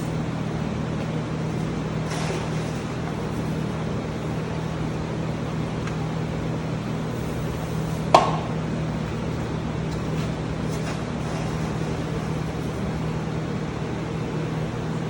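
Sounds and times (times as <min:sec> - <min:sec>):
steady mechanical hum: 0:00.0 - 0:15.0
sharp knock: 0:08.1 - 0:08.5.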